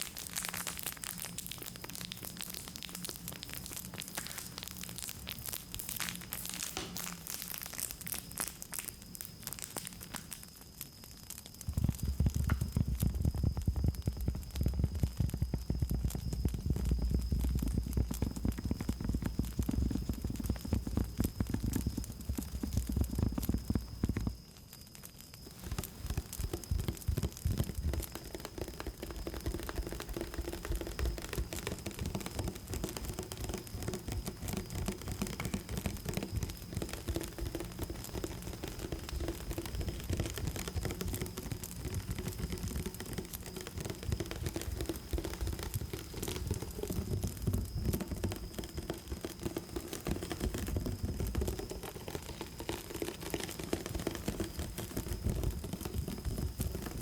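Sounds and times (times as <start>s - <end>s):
rustling and tapping: 25.5s - 57.0s.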